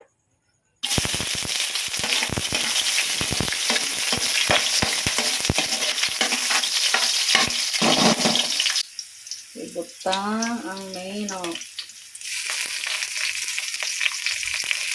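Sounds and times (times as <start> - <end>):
food sizzling in a pan: 0.8 - 14.9
utensil knocking against pan: 2.0 - 8.6.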